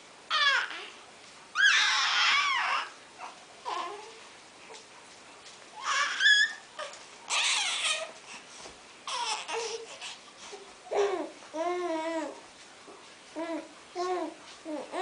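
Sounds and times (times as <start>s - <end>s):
baby babbling and squealing: 5.8s - 6.6s, 7.3s - 8.1s.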